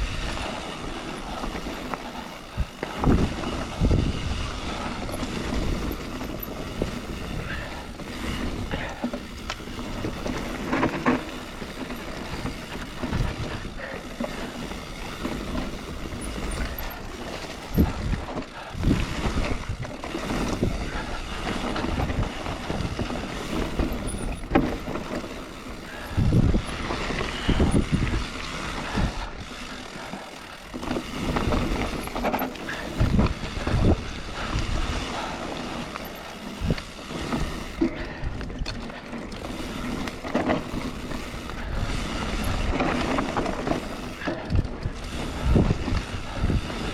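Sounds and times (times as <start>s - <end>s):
bike rattling: 0.0s - 46.9s
bike tyre rumble: 0.0s - 46.9s
wind on microphone: 2.5s - 10.9s, 15.0s - 24.9s, 25.8s - 29.5s, 30.8s - 35.6s, 40.7s - 46.9s.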